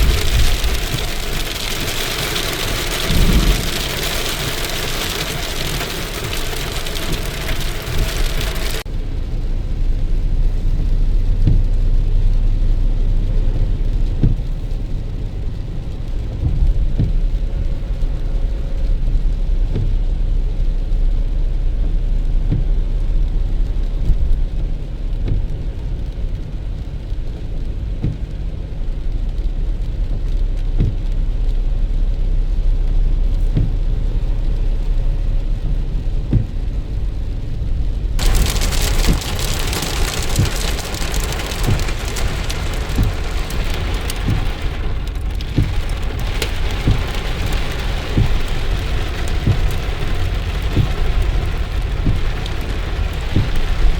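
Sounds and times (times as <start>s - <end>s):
rain hissing: 0.0s - 20.3s, 22.9s - 53.9s
muffled low rumble: 0.0s - 53.9s.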